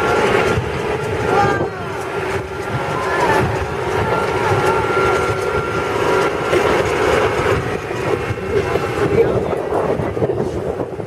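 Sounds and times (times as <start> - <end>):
truck engine and running noise: 0.0 - 11.0.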